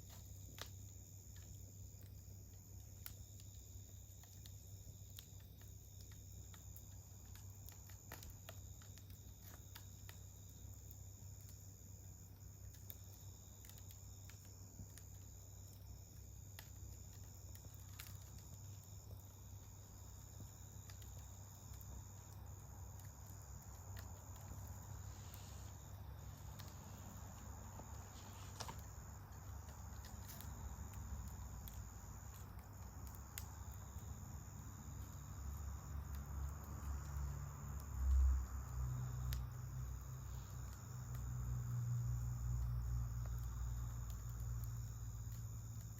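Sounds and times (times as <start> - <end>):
campfire crackling: 0.0 - 45.9
crickets trilling: 0.0 - 45.9.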